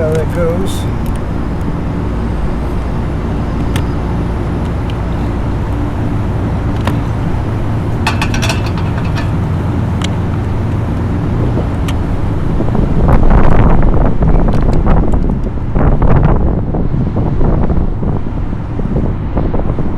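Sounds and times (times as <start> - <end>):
machinery drone: 0.0 - 13.0.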